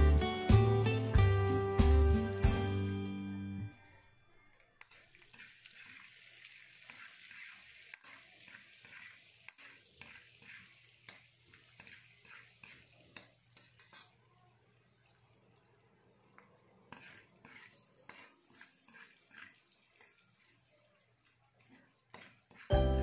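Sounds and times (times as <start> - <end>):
butter sizzling in oil: 4.9 - 14.2, 16.9 - 22.8.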